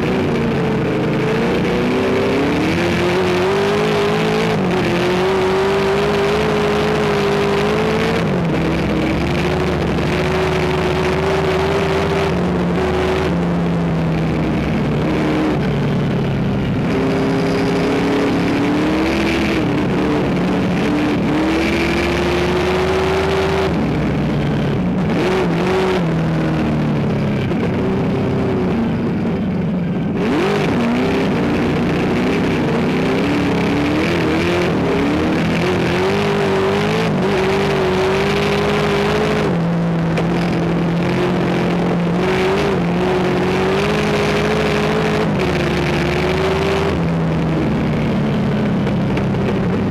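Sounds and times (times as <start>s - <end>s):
race car engine revving: 0.0s - 49.9s.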